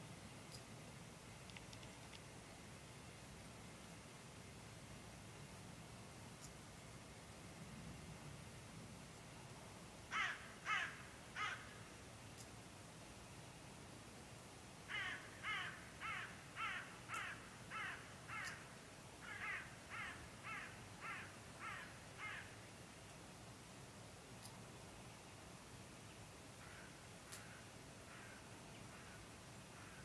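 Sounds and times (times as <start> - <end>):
bird cawing: 10.1 - 11.8, 14.9 - 22.6, 26.6 - 30.0.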